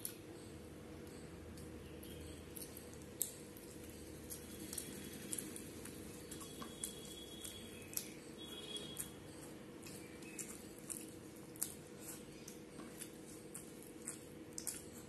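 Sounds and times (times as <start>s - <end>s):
person chewing food: 0.0s - 0.3s, 1.0s - 15.0s
steady low hum: 0.0s - 15.0s.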